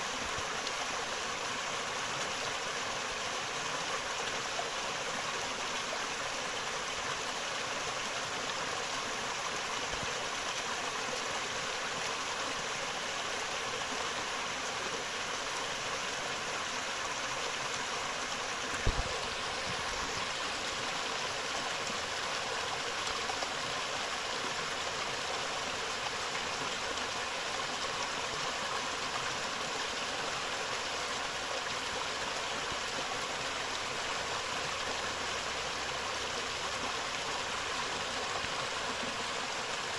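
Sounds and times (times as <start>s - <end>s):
river water rushing: 0.0s - 39.9s
low thump: 18.8s - 19.2s.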